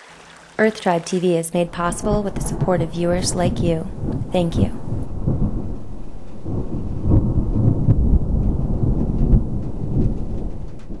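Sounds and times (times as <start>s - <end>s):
rain falling: 0.0s - 11.0s
thunder rumbling: 0.0s - 11.0s.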